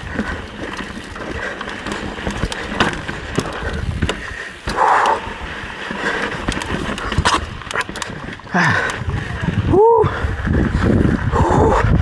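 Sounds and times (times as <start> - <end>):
bike knocks and rattles: 0.0 - 9.6
bike tyre rumble on rocks: 0.0 - 12.0.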